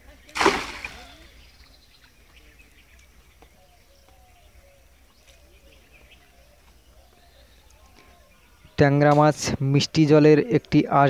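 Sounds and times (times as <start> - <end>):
bird calling softly: 0.0 - 8.8.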